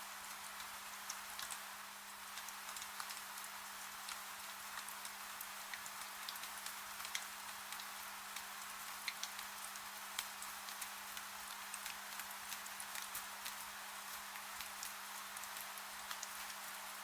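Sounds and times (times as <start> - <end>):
steady rain: 0.0 - 17.0
raindrops ticking: 4.0 - 9.5.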